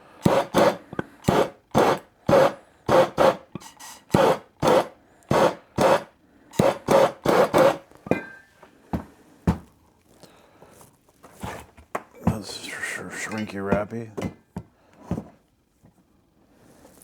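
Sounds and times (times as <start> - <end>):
hand scraping back and forth: 0.2 - 8.0.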